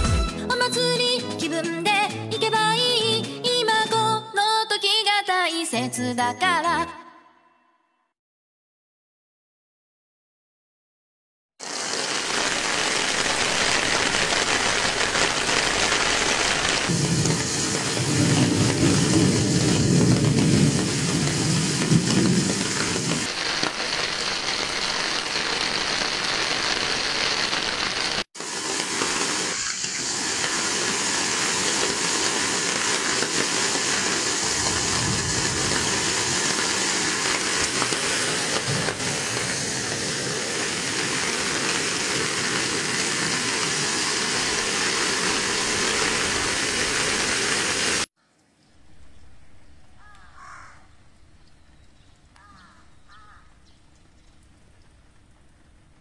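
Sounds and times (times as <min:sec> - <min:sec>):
heavy rain pouring: 0:11.6 - 0:48.1.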